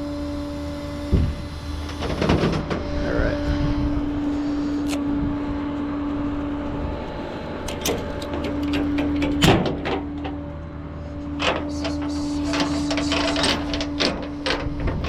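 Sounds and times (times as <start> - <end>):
hydraulic pump whine: 0.0 - 15.0
metal clanks: 7.7 - 10.5, 11.3 - 15.0.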